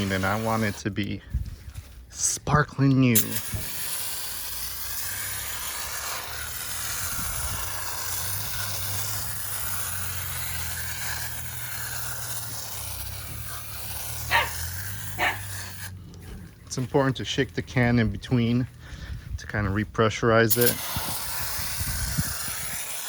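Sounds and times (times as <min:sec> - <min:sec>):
aerosol can spraying hiss: 0:03.2 - 0:15.9, 0:20.5 - 0:23.0.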